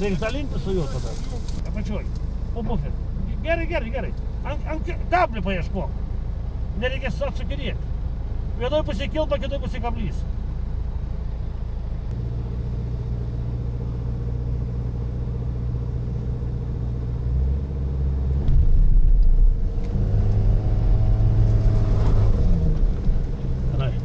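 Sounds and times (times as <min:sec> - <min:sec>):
vehicle engine revving: 0:10.4 - 0:24.0.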